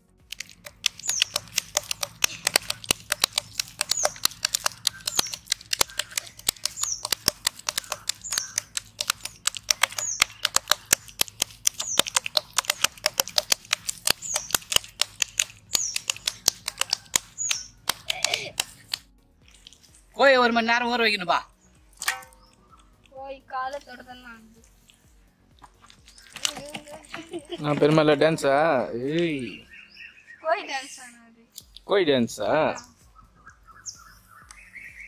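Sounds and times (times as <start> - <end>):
rapid irregular clicking: 0.0 - 20.0
bird chirping: 0.3 - 20.0, 21.4 - 35.0.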